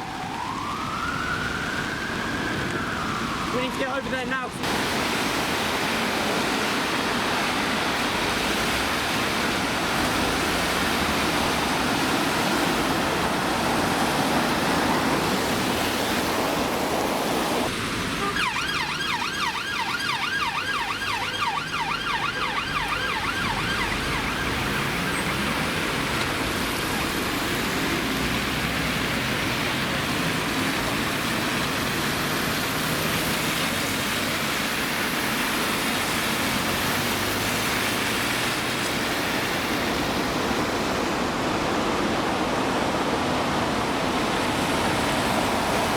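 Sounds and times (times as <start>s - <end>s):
emergency siren yelping: 0.0s - 4.0s, 17.4s - 27.2s
heavy rain: 0.0s - 45.9s
traffic on wet road: 0.0s - 45.9s.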